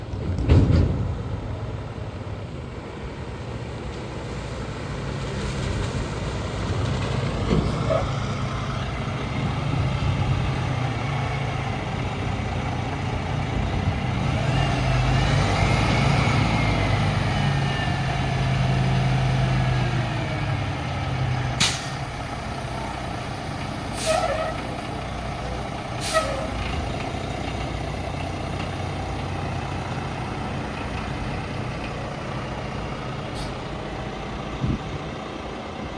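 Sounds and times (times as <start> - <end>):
truck diesel engine humming: 1.2 - 35.9
air bursts: 23.9 - 24.5, 26.0 - 26.5.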